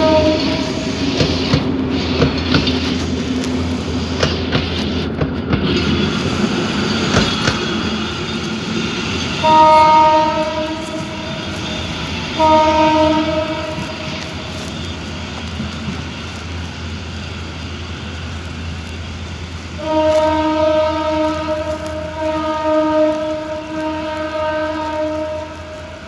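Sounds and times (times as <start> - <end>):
train horn blasts: 0.0 - 1.0, 9.4 - 14.7, 19.8 - 26.0
train wheels rumbling and clicking: 0.0 - 26.0.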